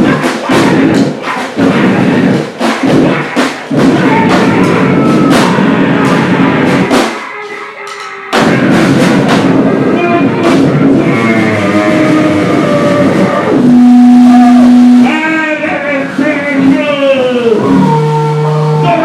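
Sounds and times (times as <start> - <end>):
distorted noise: 0.0 - 19.0
drum kit pounding: 0.0 - 19.0.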